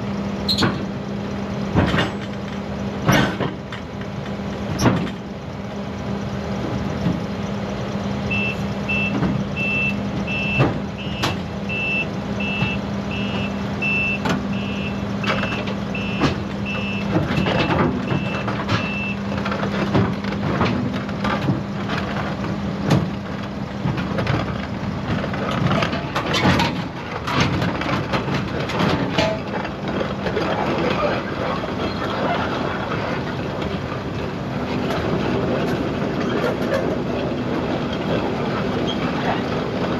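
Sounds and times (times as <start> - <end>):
clanks from steel tracks: 0.0 - 1.0, 1.6 - 39.9
diesel engine hum: 0.0 - 39.9
travel alarm beeping: 8.3 - 19.2.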